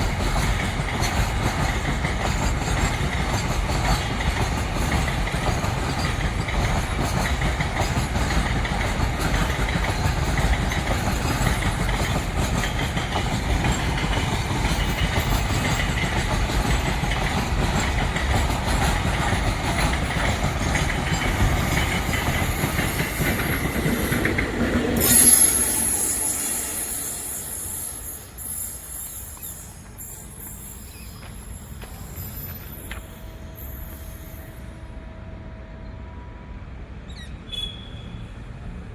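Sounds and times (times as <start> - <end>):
wheels clacking over rail joints: 0.0 - 33.2
freight train rumbling past: 0.0 - 38.9
high thin wheel squeal: 25.0 - 34.8, 37.2 - 38.2.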